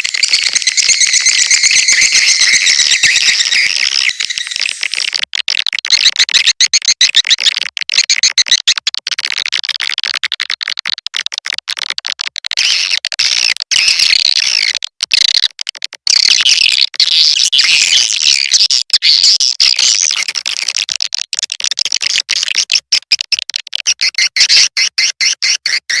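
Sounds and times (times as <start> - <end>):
swiftlets twittering: 0.0 - 5.1.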